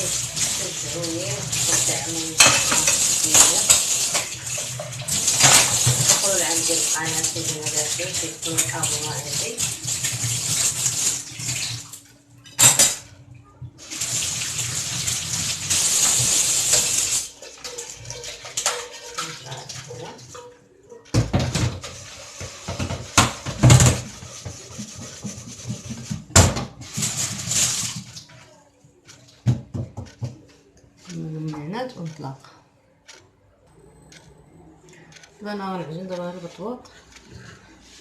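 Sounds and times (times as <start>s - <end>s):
tap running into sink: 0.0s - 11.9s, 21.1s - 28.4s
sharp knocks and clatters: 20.4s - 28.2s, 29.1s - 30.5s.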